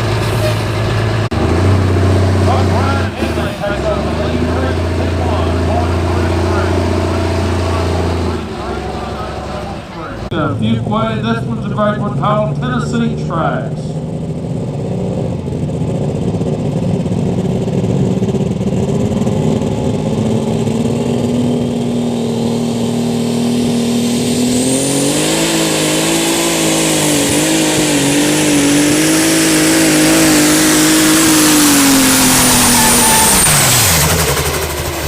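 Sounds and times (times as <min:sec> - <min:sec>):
tractor engine under full load: 0:00.0 - 0:35.0
high turbo whistle: 0:28.9 - 0:34.6.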